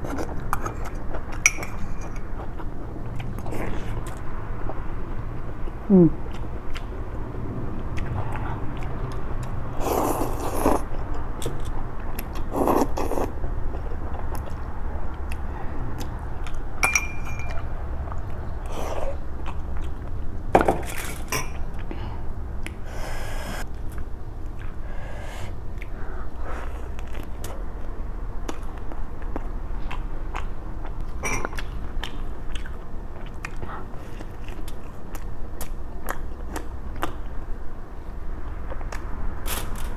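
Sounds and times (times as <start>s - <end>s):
chewing and biting food: 0.0s - 21.9s, 23.6s - 24.8s, 25.5s - 37.6s
low hum: 0.0s - 25.0s
utensil clinking against dishes: 1.4s - 2.2s, 16.8s - 17.7s, 31.2s - 31.6s.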